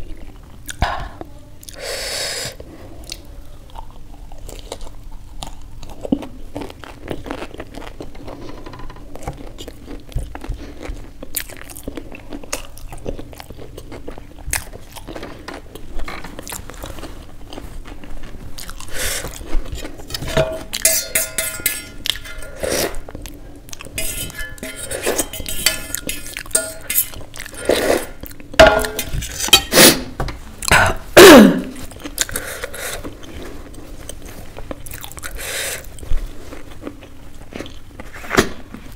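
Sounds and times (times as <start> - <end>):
chewing and lip smacks: 0.1 - 0.8, 9.3 - 20.2.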